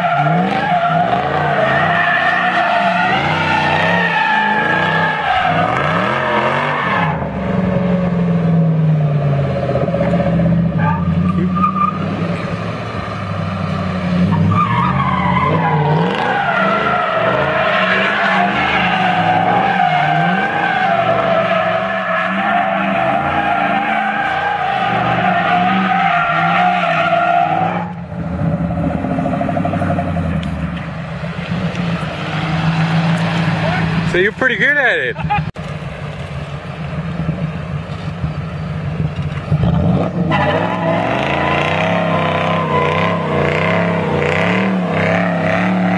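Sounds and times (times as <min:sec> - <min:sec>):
car engine revving hard: 0:00.0 - 0:08.1, 0:15.3 - 0:27.6, 0:39.6 - 0:45.9
tires squealing: 0:00.0 - 0:35.5, 0:36.9 - 0:45.9.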